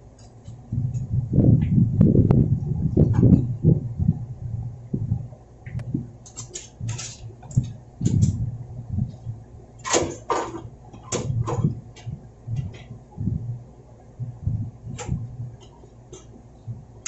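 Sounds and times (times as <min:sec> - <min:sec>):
metal clicks knocks and scrapes: 0:05.7 - 0:08.4, 0:15.0 - 0:16.4.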